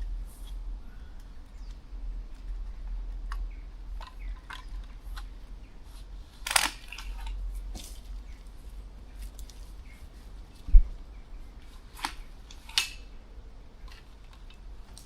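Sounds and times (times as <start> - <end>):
sharp clicks: 6.4 - 7.4
low rumble: 7.2 - 11.6
heavy low thump: 10.7 - 11.0.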